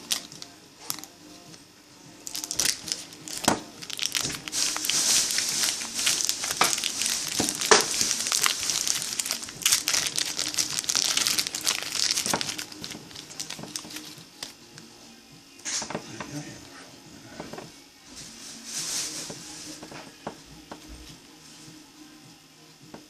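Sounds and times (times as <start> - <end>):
crinkling and rustling material: 2.2 - 14.6, 17.3 - 21.2.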